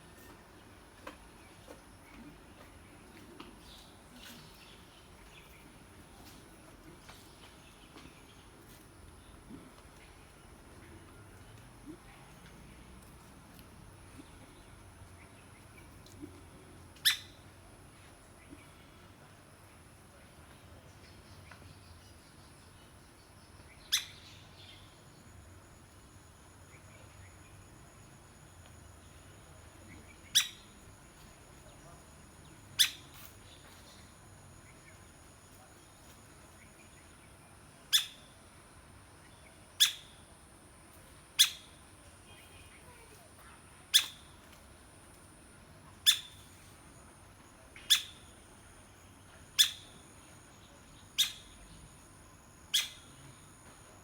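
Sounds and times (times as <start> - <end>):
woodpecker call notes: 17.0 - 17.4, 23.9 - 24.4, 30.0 - 30.8, 32.8 - 33.2, 37.9 - 38.3, 39.8 - 40.2, 41.4 - 41.8, 43.9 - 44.4, 46.0 - 46.5, 47.8 - 48.4, 49.5 - 50.1, 51.0 - 51.6, 52.7 - 53.2.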